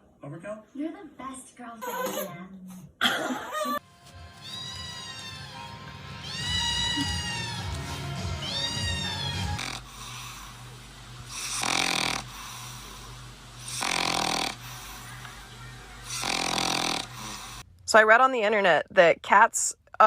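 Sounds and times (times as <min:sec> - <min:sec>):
cat meowing: 0:04.4 - 0:09.8
pet snoring: 0:09.0 - 0:10.6, 0:11.3 - 0:14.9, 0:16.0 - 0:17.6.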